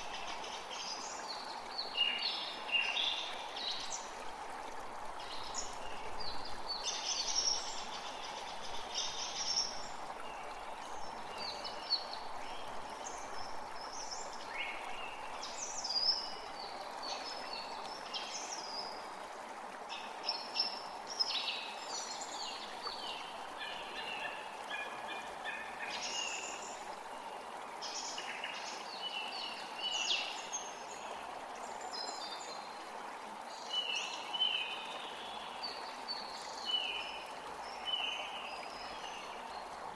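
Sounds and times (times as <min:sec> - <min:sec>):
creek running: 0:00.0 - 0:39.9.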